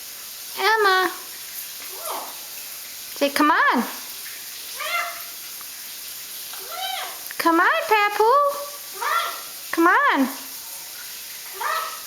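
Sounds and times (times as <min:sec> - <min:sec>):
parrot soft vocal sound: 0:01.9 - 0:02.5, 0:04.8 - 0:05.4, 0:06.5 - 0:07.3, 0:08.7 - 0:09.6, 0:11.5 - 0:12.0.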